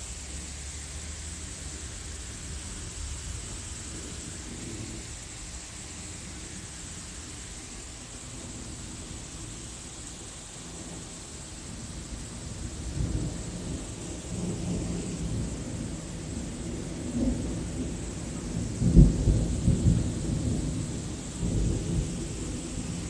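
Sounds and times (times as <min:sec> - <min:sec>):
rain hissing: 0:00.0 - 0:23.0
thunder rumbling: 0:12.2 - 0:23.0.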